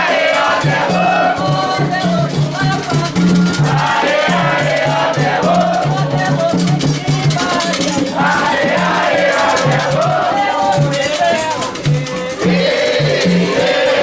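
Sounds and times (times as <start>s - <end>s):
rattle shaking: 0.0s - 14.0s
steady drumming: 0.0s - 14.0s
voices singing a chant: 0.0s - 14.0s.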